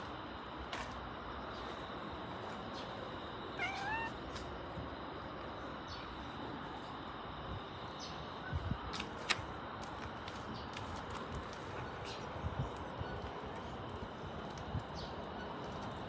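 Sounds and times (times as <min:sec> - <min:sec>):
cat meowing: 0:03.6 - 0:04.2.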